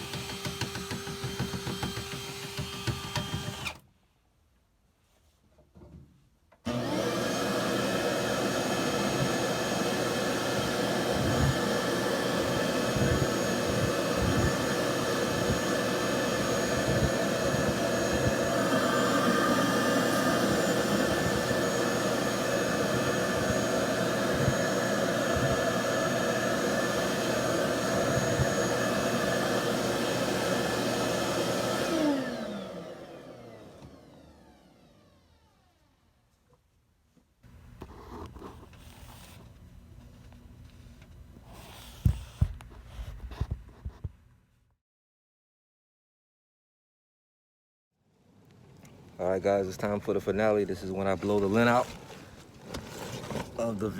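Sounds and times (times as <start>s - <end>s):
vacuum cleaner running: 0.0s - 3.8s, 6.6s - 35.9s, 49.8s - 53.9s.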